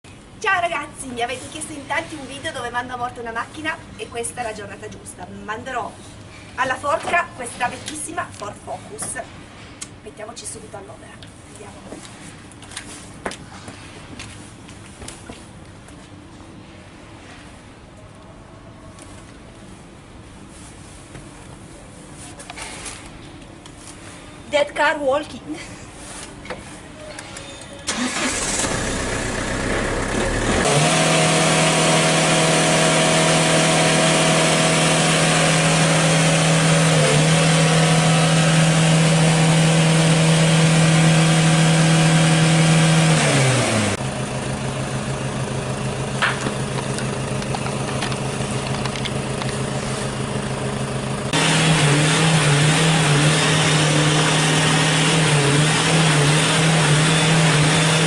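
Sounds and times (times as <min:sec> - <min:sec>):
car engine revving: 0:27.9 - 0:44.0, 0:45.9 - 0:58.0.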